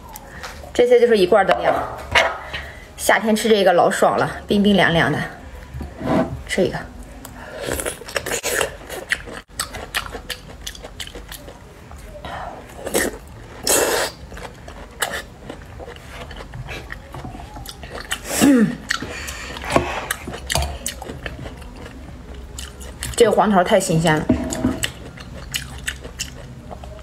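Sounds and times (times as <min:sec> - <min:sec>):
wet chewing and slurping: 0:07.7 - 0:11.6, 0:12.8 - 0:23.2, 0:24.4 - 0:27.0.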